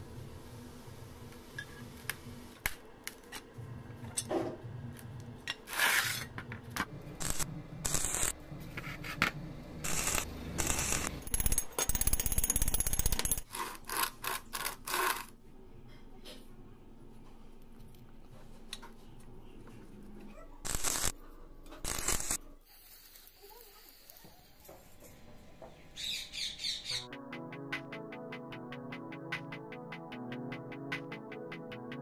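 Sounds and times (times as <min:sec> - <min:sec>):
steel parts clinking and knocking: 0:10.6 - 0:13.5.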